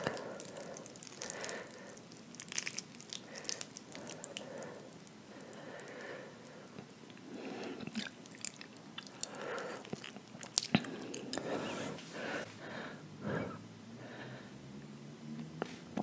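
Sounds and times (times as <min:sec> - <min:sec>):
person chewing noodles: 0:00.0 - 0:12.5.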